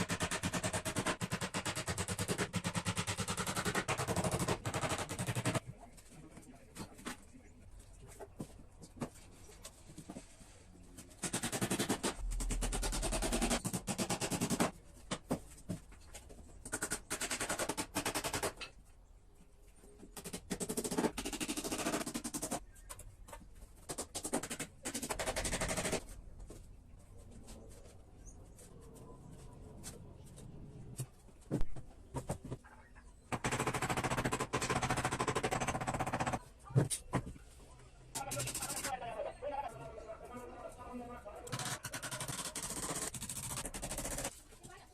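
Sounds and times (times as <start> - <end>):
rapid mechanical hammering: 0.0 - 5.6, 11.2 - 14.8, 33.3 - 36.4, 41.5 - 44.3.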